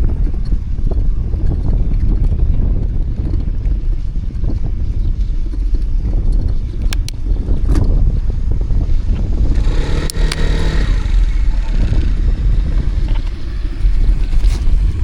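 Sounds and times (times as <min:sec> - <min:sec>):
street traffic rumble: 0:00.0 - 0:15.0
motor vehicle passing close: 0:08.8 - 0:15.0.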